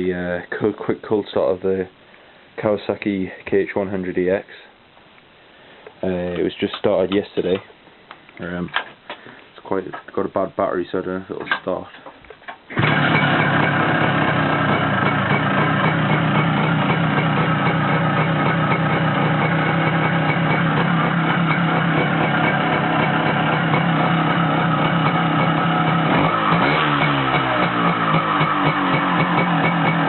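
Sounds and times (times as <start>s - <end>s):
two-stroke motorcycle engine running: 12.7s - 30.0s.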